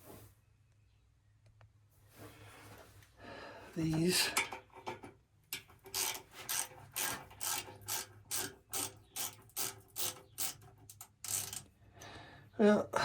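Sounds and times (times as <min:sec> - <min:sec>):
ratchet wrench clicking: 0:05.9 - 0:11.7.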